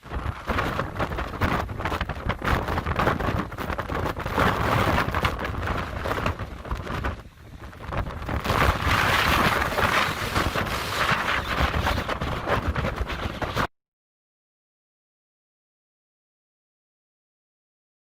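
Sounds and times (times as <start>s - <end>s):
strong wind gusting over microphone: 0.0s - 13.7s.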